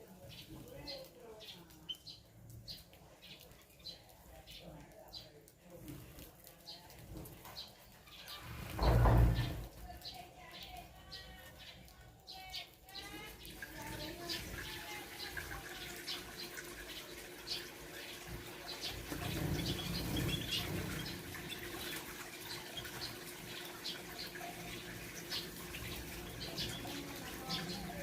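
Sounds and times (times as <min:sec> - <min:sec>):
small birds chirping: 0:00.0 - 0:28.0
low rustle of wingbeats: 0:12.8 - 0:28.0.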